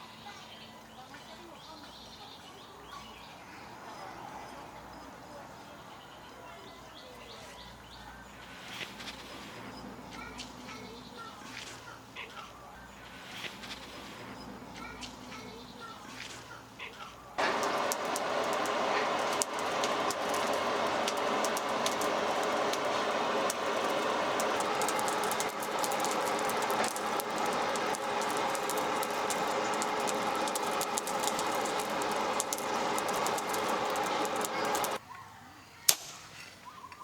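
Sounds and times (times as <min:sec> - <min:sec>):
power tool grinding steel: 0:17.4 - 0:35.0.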